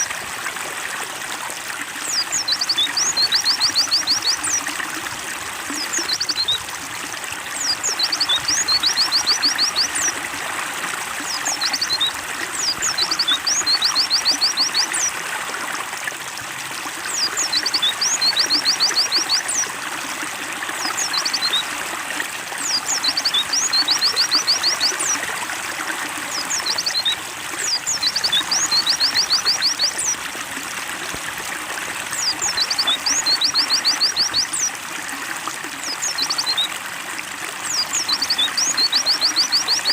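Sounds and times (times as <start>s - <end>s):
water trickling and splashing: 0.0s - 39.9s
bird chirping: 7.6s - 10.1s, 11.3s - 15.1s, 22.6s - 25.2s, 26.3s - 30.2s.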